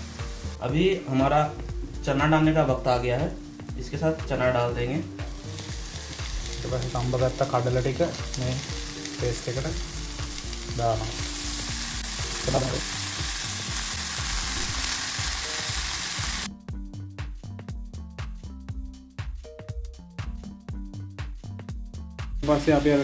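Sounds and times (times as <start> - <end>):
paste sizzling in oil: 5.1 - 16.5.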